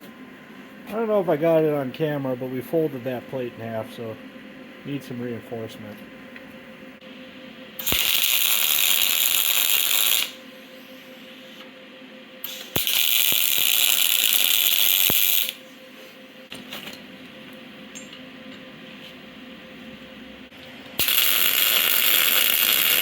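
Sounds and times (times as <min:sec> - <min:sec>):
pneumatic air tool running: 0:07.8 - 0:10.4, 0:12.4 - 0:15.6, 0:21.0 - 0:23.0.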